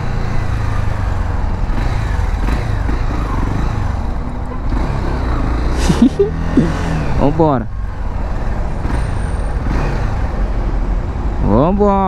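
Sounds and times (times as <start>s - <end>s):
motorcycle engine rumbling: 0.0s - 10.9s.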